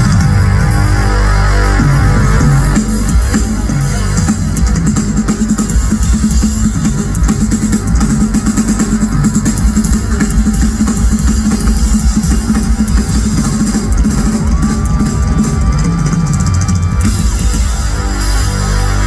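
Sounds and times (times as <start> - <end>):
bass guitar: 0.0 - 19.0
distorted guitars: 0.0 - 19.0
pounding drum kit: 0.0 - 19.0.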